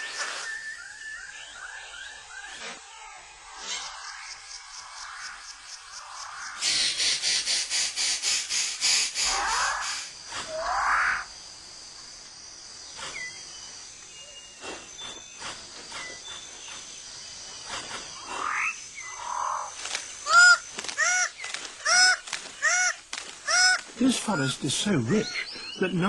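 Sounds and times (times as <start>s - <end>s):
bird rising whistles: 0.0s - 2.5s
loud arched bird calls: 0.0s - 11.4s, 15.4s - 26.0s
high insect hum: 0.0s - 26.0s.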